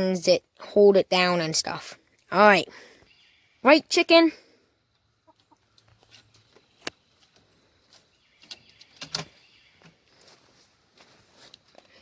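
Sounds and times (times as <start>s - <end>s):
chickens clucking: 4.8s - 10.1s.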